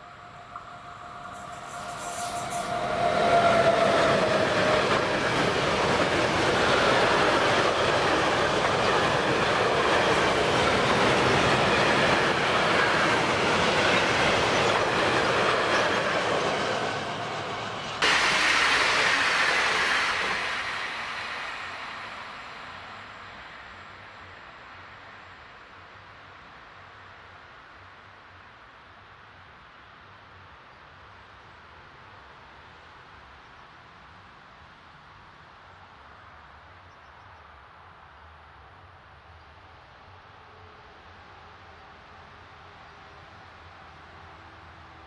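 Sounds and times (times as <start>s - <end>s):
locomotive whine: 0.0s - 23.5s
train wheels rumbling on rails: 0.0s - 24.4s.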